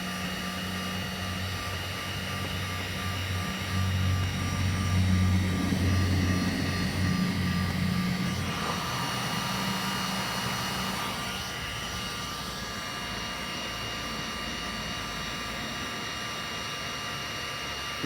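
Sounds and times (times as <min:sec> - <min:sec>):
heat gun blower whine: 0:00.0 - 0:18.0
deep hum: 0:01.5 - 0:10.5.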